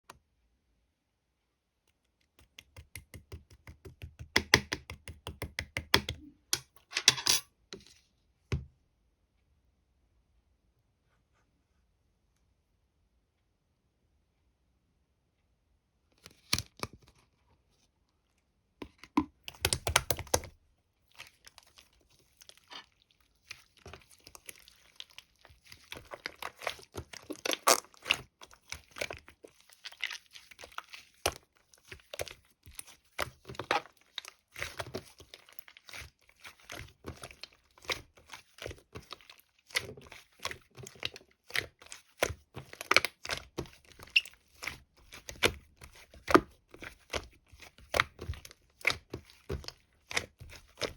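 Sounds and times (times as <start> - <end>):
crinkling and tearing: 21.1 - 50.9.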